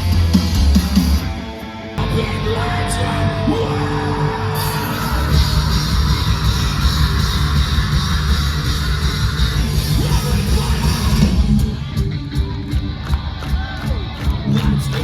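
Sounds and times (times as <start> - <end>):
heavy rock band playing: 0.0 - 15.0
vocalist yelling: 2.0 - 11.4.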